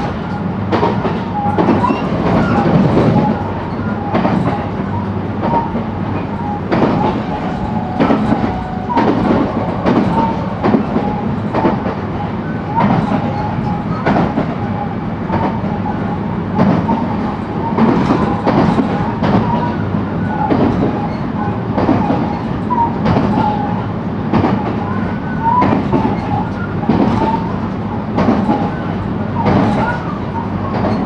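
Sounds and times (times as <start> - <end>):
train interior rumble: 0.0 - 31.0
wheels knocking on rail joints: 5.4 - 14.6, 16.6 - 19.8, 20.4 - 23.6.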